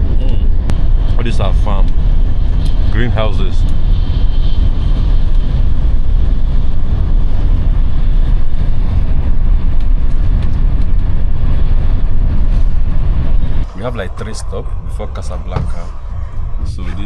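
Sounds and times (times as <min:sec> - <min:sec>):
high-speed train rumbling: 0:00.0 - 0:17.0.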